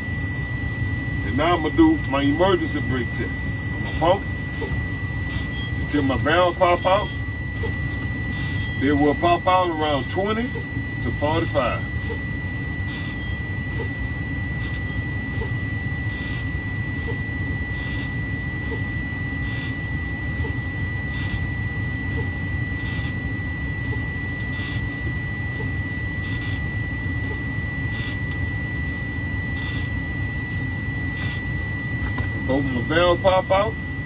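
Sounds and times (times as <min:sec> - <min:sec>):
warning buzzer high tone: 0:00.0 - 0:34.0
air exhausting bursts: 0:08.3 - 0:08.7, 0:16.1 - 0:17.1.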